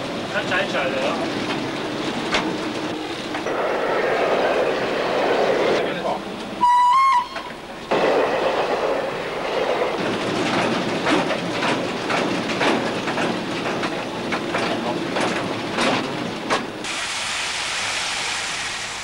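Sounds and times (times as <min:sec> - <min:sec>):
train wheels clattering: 0:00.0 - 0:06.6, 0:07.2 - 0:16.9
steady hiss: 0:16.8 - 0:19.0.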